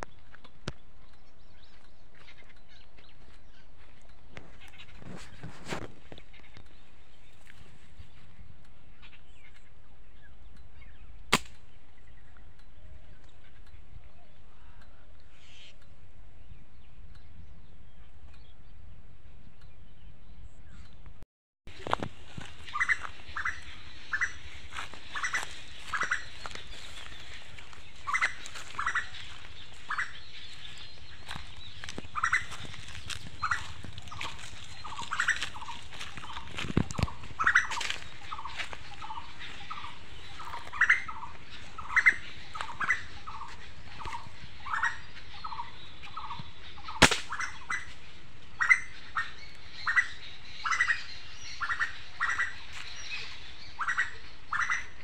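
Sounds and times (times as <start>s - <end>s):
birds calling: 0.0s - 55.0s
sharp snap: 11.3s - 11.7s, 47.0s - 47.4s.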